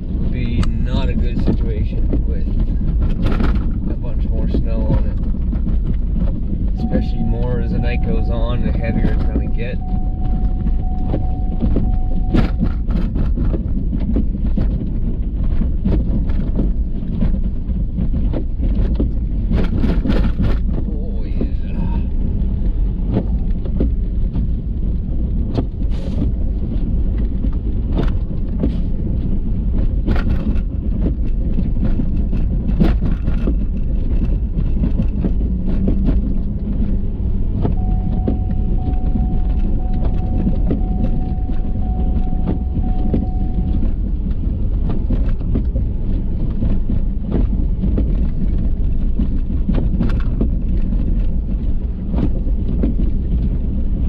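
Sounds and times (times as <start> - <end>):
truck engine and tyres drone: 0.0 - 54.0
thin steady tone: 6.8 - 12.7, 37.8 - 43.9.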